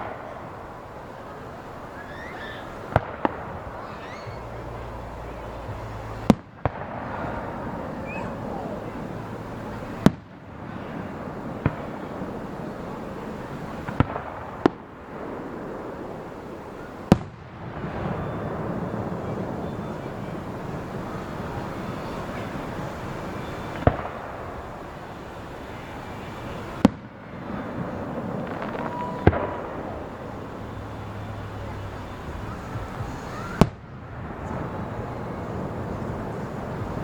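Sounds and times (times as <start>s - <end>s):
fireworks bursting: 0.0s - 37.0s
steady rush of noise: 0.0s - 37.0s.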